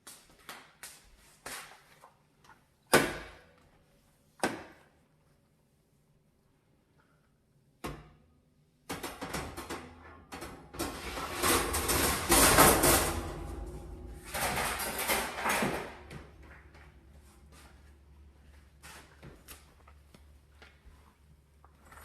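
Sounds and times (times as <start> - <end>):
scrubbing dirty oven: 10.8 - 16.2.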